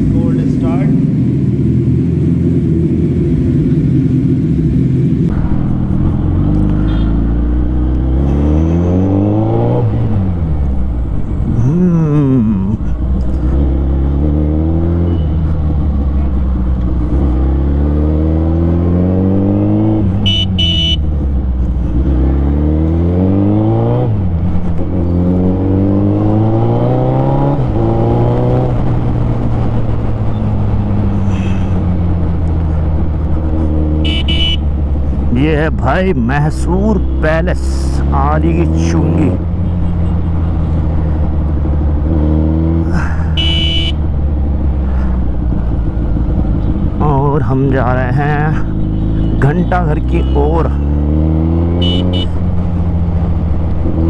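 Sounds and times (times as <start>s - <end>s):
motorcycle engine revving: 0.0s - 54.0s
horn beeps: 20.2s - 21.1s, 34.0s - 34.7s, 43.3s - 44.0s, 51.7s - 52.4s.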